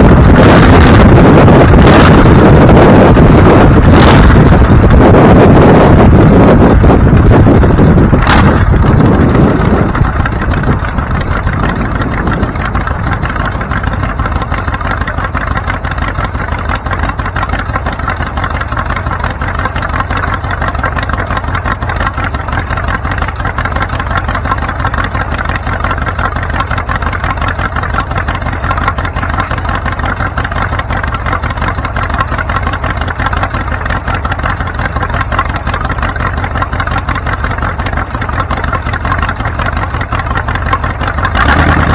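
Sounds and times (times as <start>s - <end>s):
vehicle engine idling: 0.0s - 41.9s.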